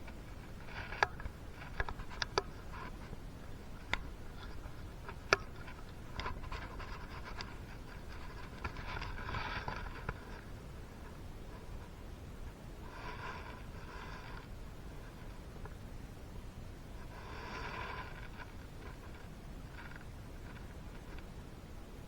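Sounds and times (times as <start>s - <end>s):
soft rubbing and rustling: 0.0s - 16.0s, 16.6s - 21.8s.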